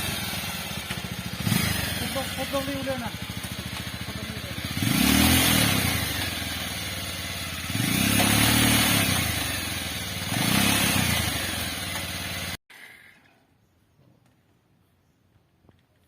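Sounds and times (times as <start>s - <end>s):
small engine revving: 0.0s - 12.6s.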